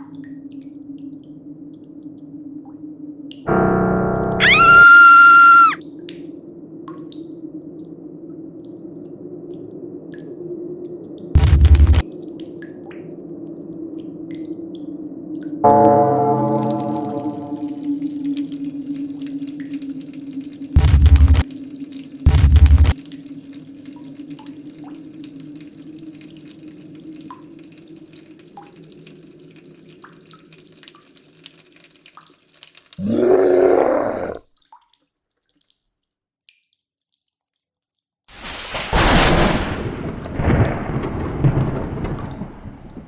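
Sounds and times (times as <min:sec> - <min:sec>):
low hum: 0:03.5 - 0:04.8, 0:11.4 - 0:12.0, 0:20.8 - 0:21.4, 0:22.3 - 0:23.0
faint drips: 0:16.7 - 0:38.2.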